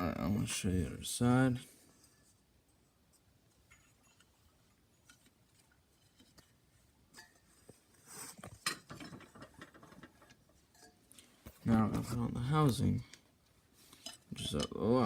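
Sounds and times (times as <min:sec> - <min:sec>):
parts handling clatter: 0:03.1 - 0:15.0.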